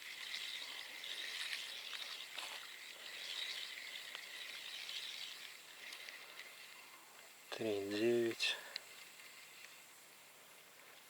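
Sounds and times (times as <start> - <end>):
high-pitched insect chirring: 0.0 - 7.0
faint clicks: 5.2 - 7.3, 8.7 - 9.8.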